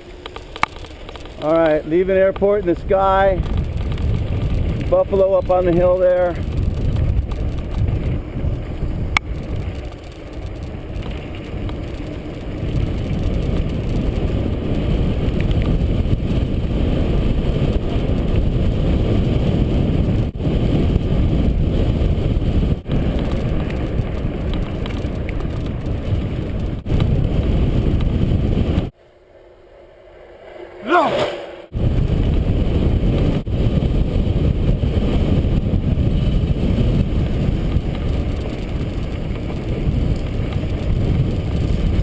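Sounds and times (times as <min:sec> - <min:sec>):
wind rushing over microphone: 0:00.0 - 0:29.0, 0:30.4 - 0:42.0
bike tyres rolling on road: 0:00.0 - 0:42.0.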